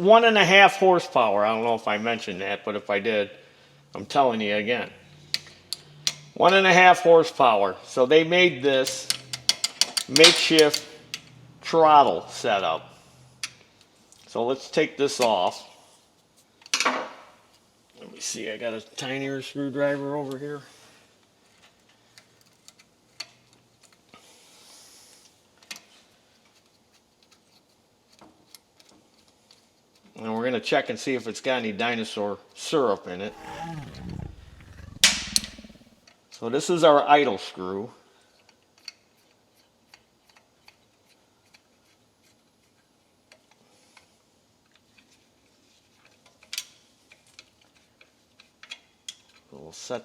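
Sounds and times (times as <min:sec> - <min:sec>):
faint clicks of parts handled: 0:25.6 - 0:30.1.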